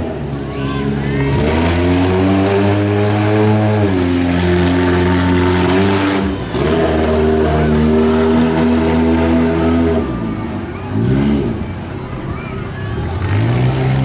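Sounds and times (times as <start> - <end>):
monster truck engine revving: 1.3 - 14.0.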